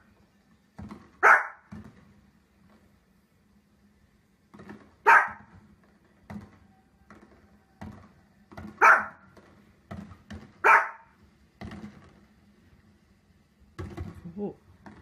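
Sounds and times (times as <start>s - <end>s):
small dog barking: 1.2s - 1.7s, 5.0s - 5.5s, 8.8s - 9.2s, 10.6s - 11.2s.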